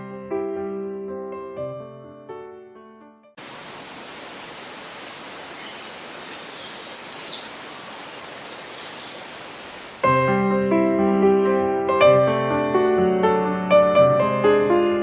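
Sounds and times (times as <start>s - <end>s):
piano tune: 0.0s - 3.4s, 10.0s - 15.0s
rushing hiss: 3.4s - 10.1s
faint bird chirps: 3.9s - 9.5s.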